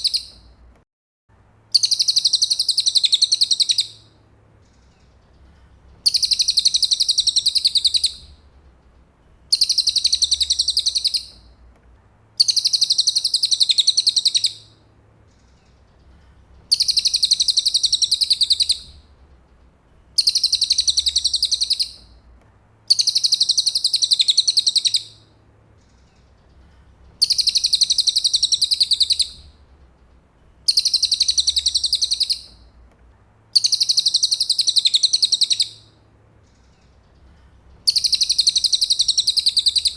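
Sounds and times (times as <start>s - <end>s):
bird singing high rapid trill: 1.8s - 4.1s, 6.0s - 8.4s, 9.5s - 11.5s, 12.4s - 14.7s, 16.7s - 19.0s, 20.2s - 22.1s, 22.9s - 25.3s, 27.2s - 29.5s, 30.6s - 32.7s, 33.5s - 36.0s, 37.8s - 39.9s.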